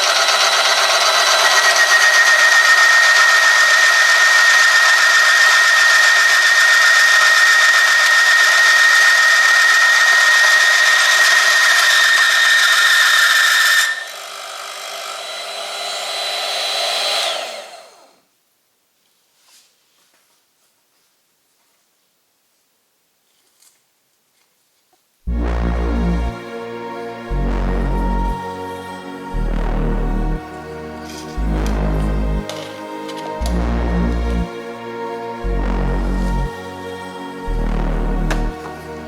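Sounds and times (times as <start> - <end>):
motor whine: 0.0 - 18.1.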